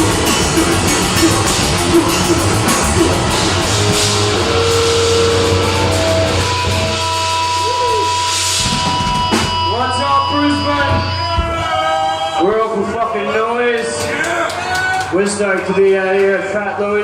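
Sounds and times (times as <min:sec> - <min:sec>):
fast drums: 0:00.0 - 0:11.6
amp hum: 0:00.0 - 0:12.0
distorted guitar: 0:00.0 - 0:12.2
guitar feedback tones: 0:00.0 - 0:13.0.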